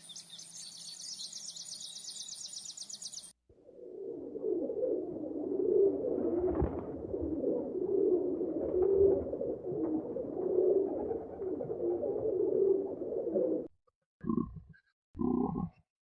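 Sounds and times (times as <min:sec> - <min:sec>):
birds cooing: 0:03.7 - 0:14.6.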